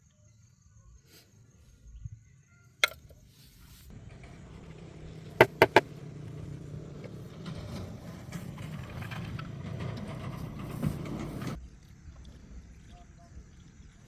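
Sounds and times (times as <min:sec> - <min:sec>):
low mechanical rumble: 0:03.8 - 0:14.0
sharp knocks: 0:05.4 - 0:05.9.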